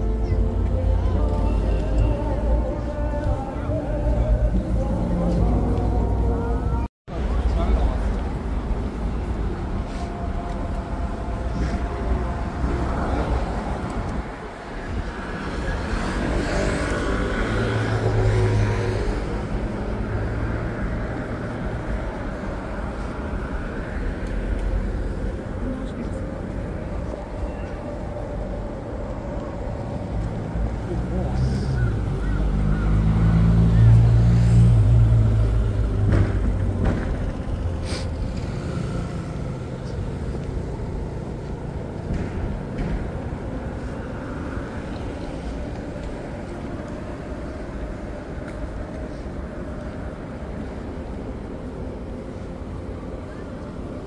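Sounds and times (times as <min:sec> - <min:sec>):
street traffic noise: 0:00.0 - 0:54.0
motor vehicle passing: 0:11.6 - 0:52.3.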